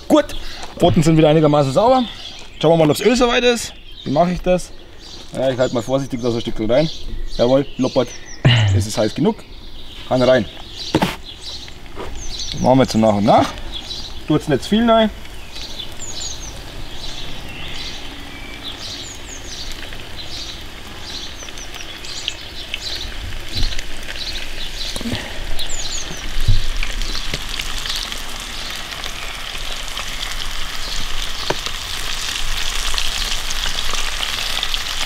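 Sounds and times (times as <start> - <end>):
fish sizzling in hot oil: 13.6 - 35.0.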